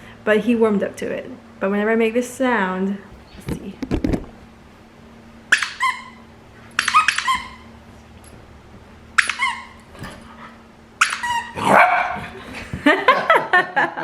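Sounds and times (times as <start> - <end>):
puppy yapping: 5.5 - 7.8, 9.2 - 9.9, 11.0 - 12.6.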